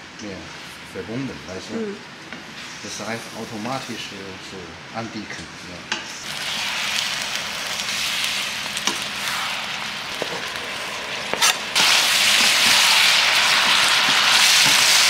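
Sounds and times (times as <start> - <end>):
food sizzling in a pan: 1.6 - 4.4, 6.1 - 15.0.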